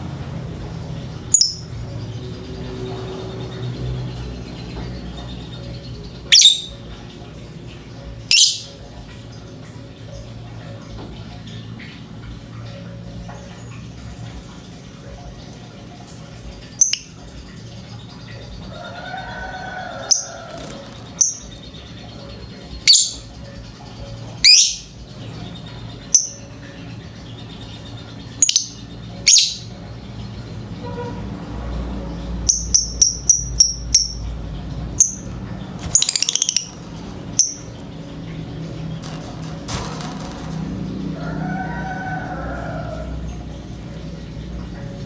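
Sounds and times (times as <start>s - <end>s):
bird trill: 1.0s - 31.2s, 32.2s - 45.0s
bird chirping and shrieking: 6.3s - 6.8s, 8.3s - 8.7s, 22.9s - 23.3s, 24.4s - 25.0s, 28.4s - 29.7s, 35.0s - 37.8s.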